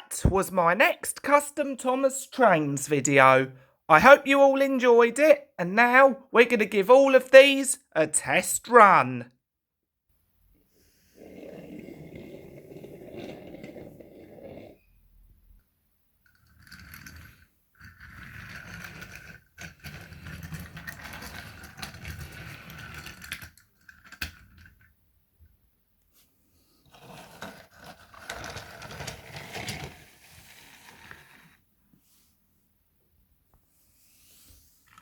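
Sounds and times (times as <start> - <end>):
toy train motor whirring: 16.3 - 24.2, 26.9 - 31.5.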